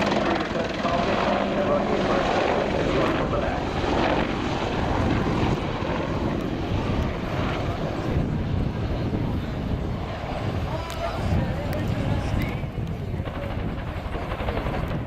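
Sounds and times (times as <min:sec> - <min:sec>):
helicopter flying low: 0:00.0 - 0:15.0.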